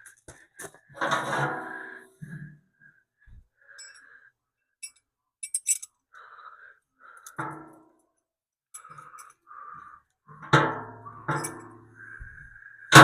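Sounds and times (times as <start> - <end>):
metal tools clanking: 4.8 - 5.9, 11.3 - 11.8.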